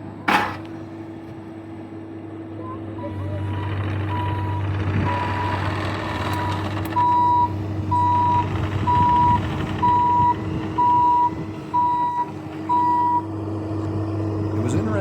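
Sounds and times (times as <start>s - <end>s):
diesel engine running: 0.0s - 15.0s
backup alarm beeping: 4.1s - 5.6s, 6.3s - 13.2s.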